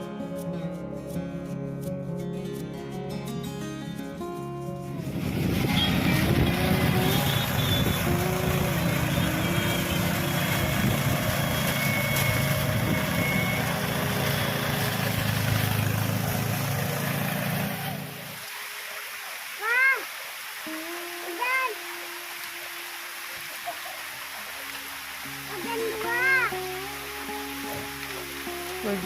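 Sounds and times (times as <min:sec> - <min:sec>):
motor engine at high revs: 0:05.0 - 0:18.4.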